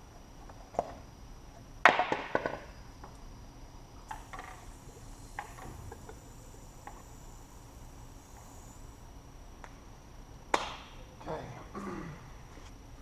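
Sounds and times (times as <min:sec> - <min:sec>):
faint high-pitched steady tone: 0:02.8 - 0:10.4.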